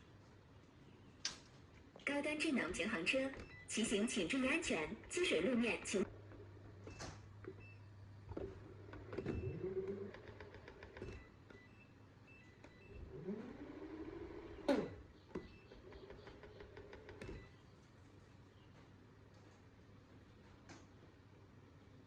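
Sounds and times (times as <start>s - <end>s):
electric scooter motors whining: 8.4s - 11.2s, 12.7s - 17.3s.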